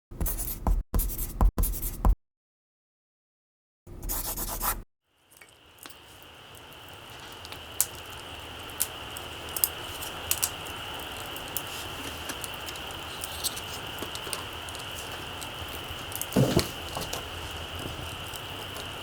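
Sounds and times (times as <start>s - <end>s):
fire hissing: 5.2s - 19.0s
campfire crackling and popping: 5.3s - 19.0s.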